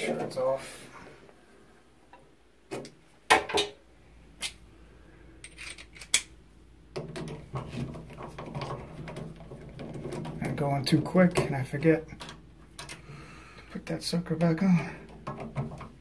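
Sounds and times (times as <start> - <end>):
low steady hum: 0.0 - 16.0
metal tools clinking and knocking: 5.4 - 6.3.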